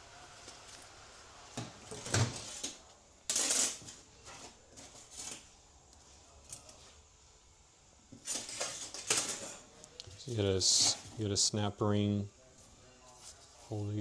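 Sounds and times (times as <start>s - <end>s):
metal scrape: 3.3s - 4.0s.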